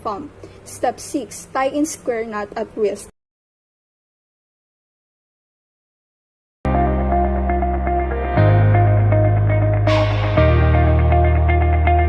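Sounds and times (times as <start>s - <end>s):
woman narrating: 0.0s - 3.2s.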